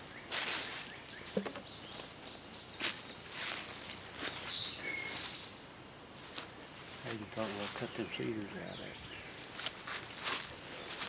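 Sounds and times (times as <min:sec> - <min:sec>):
insects chirring: 0:00.0 - 0:11.0
footsteps in brush: 0:00.3 - 0:05.4, 0:06.2 - 0:08.1, 0:09.3 - 0:11.0.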